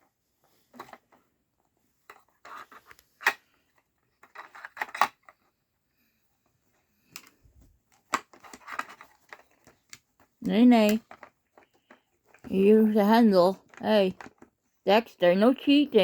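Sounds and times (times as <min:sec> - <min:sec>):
plastic puzzle toy clattering: 0:02.0 - 0:05.5, 0:07.0 - 0:12.8, 0:13.5 - 0:14.6.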